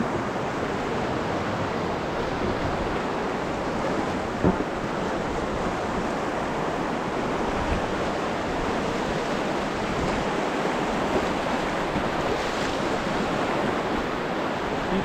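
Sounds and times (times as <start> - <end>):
river whitewater rushing: 0.0 - 15.0
wind on microphone: 0.0 - 15.0.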